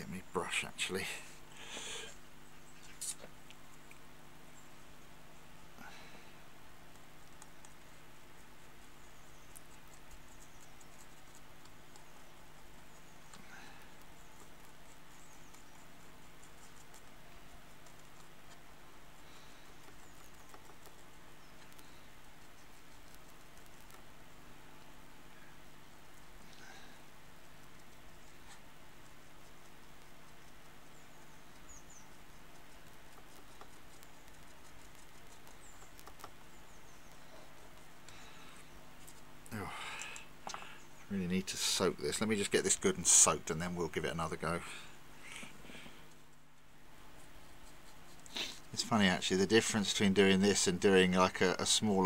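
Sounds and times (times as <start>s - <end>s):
low steady hum: 0.0s - 52.0s
paintbrush scrubbing plastic: 32.1s - 36.5s.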